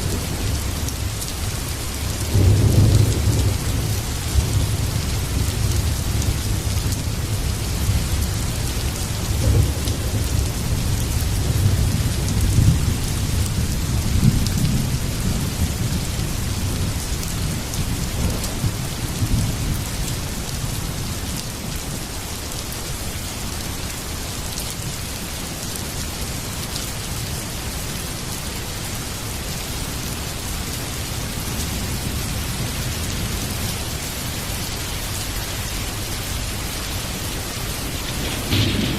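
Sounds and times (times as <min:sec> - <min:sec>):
thunder rumbling: 0:00.0 - 0:16.9, 0:35.7 - 0:38.9
heavy rain falling: 0:00.0 - 0:38.9.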